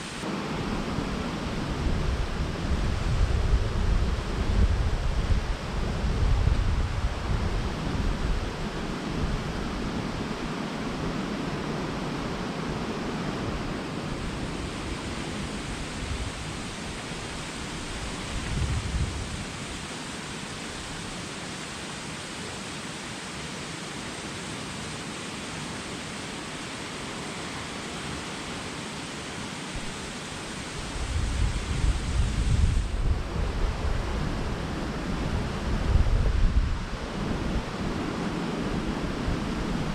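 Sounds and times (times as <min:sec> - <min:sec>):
waterfall rushing: 0:00.0 - 0:02.7, 0:07.0 - 0:35.9
wind buffeting microphone: 0:00.7 - 0:10.5, 0:14.1 - 0:19.8, 0:30.8 - 0:39.9.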